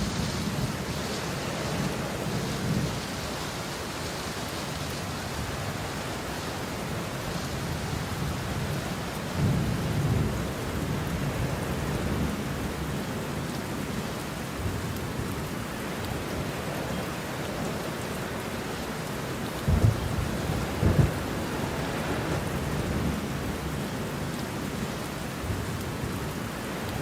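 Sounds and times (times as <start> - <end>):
steady rain: 0.0 - 27.0
thunder rumble: 19.5 - 24.8.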